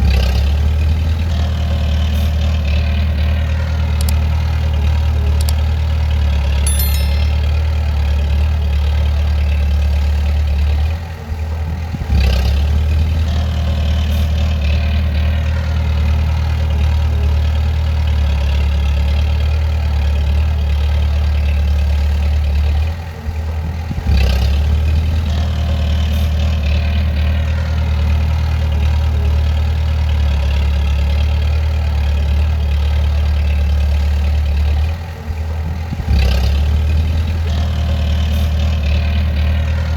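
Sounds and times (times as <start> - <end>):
sharp metal clank: 6.7 - 7.7
bulldozer diesel engine droning: 7.5 - 39.9.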